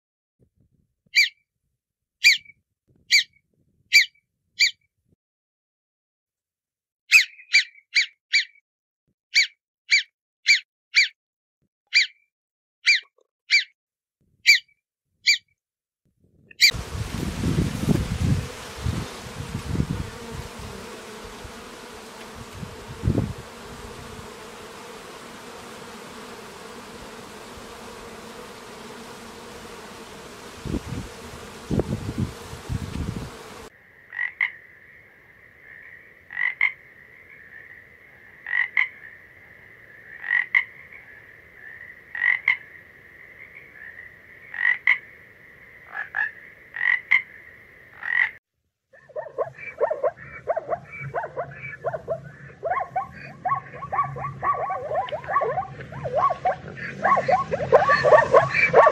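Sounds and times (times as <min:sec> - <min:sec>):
honeybees buzzing: 0:16.6 - 0:33.7, 0:49.6 - 0:58.9
tree frog croaking: 0:34.0 - 0:39.2, 0:40.0 - 0:48.4, 0:49.1 - 0:58.9.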